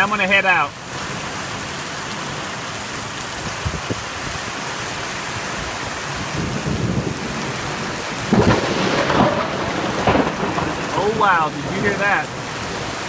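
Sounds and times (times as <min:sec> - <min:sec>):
heavy rain pouring: 0:00.0 - 0:13.0
thunder rumbling: 0:06.2 - 0:13.0.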